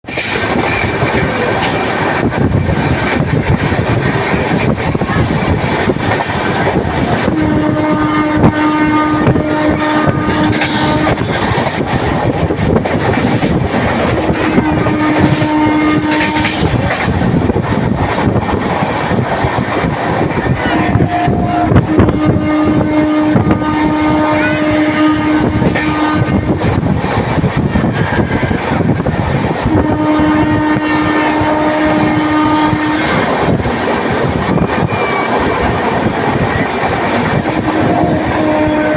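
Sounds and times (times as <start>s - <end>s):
train wheels rattling: 0.0s - 38.9s
train horn: 7.2s - 11.6s, 14.0s - 16.9s, 20.4s - 26.8s, 29.6s - 33.6s, 37.4s - 38.9s.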